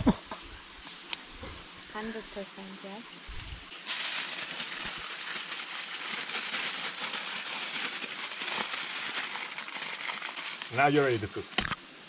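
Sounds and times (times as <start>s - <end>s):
campfire crackling: 3.3s - 11.8s.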